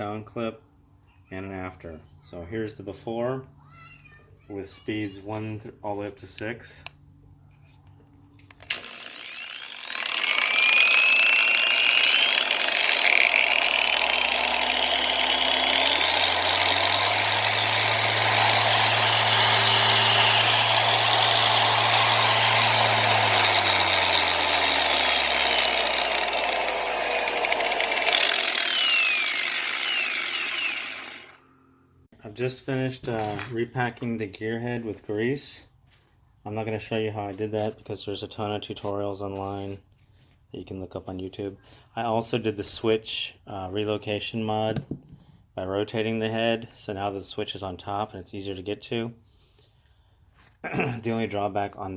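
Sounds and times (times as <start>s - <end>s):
polisher motor whining: 8.7s - 31.4s.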